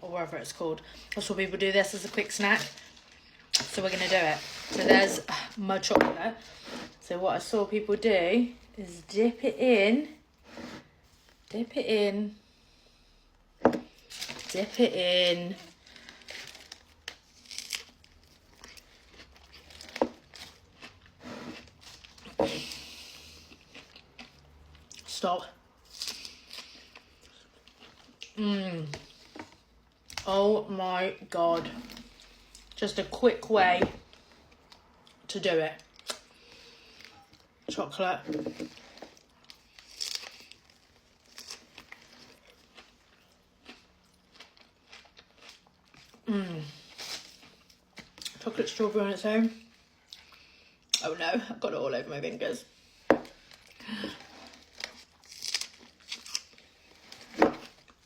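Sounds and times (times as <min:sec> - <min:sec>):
crisp pastry crunching: 0:15.6 - 0:22.4, 0:38.7 - 0:48.5, 0:53.3 - 0:58.0.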